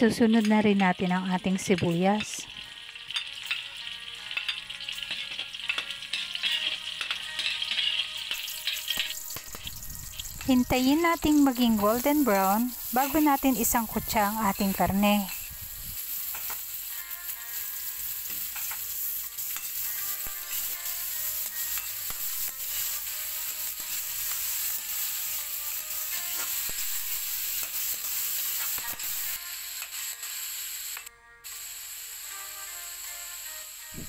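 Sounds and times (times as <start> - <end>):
meat sizzling in hot oil: 0.0 - 34.0
spatula scraping a wok: 4.4 - 30.5.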